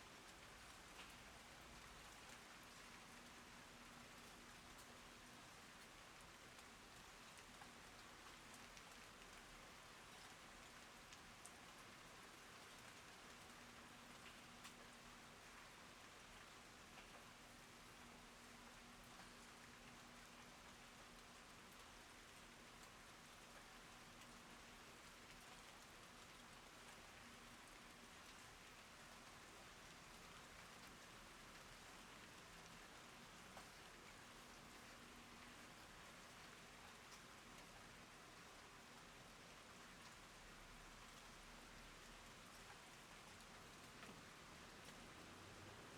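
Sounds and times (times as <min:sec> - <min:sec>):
faint rain falling: 0:00.0 - 0:45.9
raindrop ticks: 0:12.6 - 0:15.7, 0:22.7 - 0:37.7.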